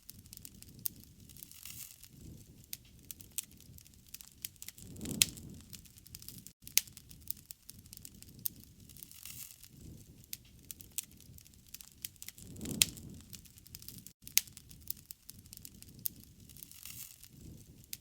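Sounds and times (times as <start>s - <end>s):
campfire crackling and popping: 0.0s - 18.0s
low rushing rumble: 4.8s - 5.8s, 12.4s - 13.5s.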